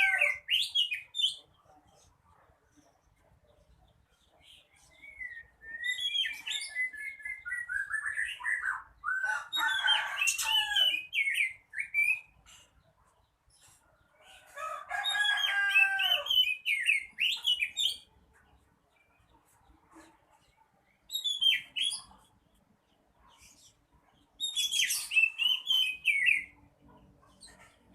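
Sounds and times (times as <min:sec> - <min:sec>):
bird singing whistled phrases: 0:05.0 - 0:09.2, 0:11.1 - 0:12.3, 0:21.2 - 0:22.0.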